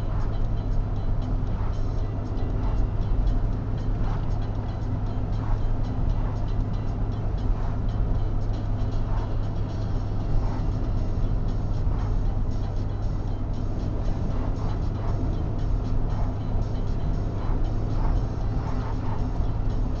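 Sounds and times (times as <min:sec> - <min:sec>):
car driving on highway: 0:00.0 - 0:20.0.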